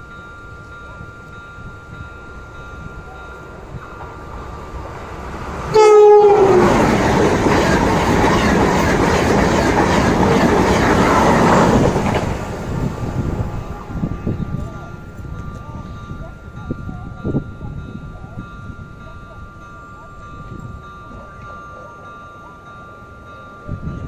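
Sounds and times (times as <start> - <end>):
train wheels rumbling on rails: 0.0 - 24.0
train horn blast: 5.7 - 8.5.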